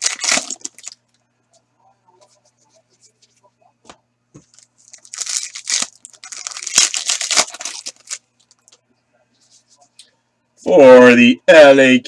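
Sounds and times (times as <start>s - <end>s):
foil wrapper tearing and crinkling: 0.0s - 1.0s, 4.6s - 8.2s.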